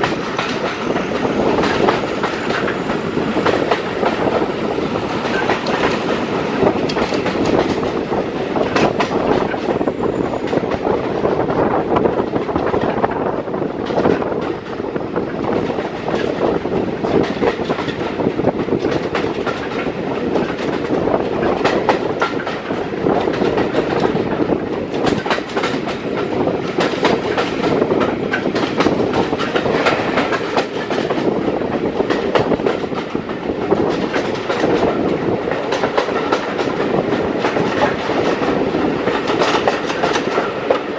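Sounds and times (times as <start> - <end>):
train coaches rumbling: 0.0 - 40.9
wheels clicking over rail joints: 8.6 - 40.9.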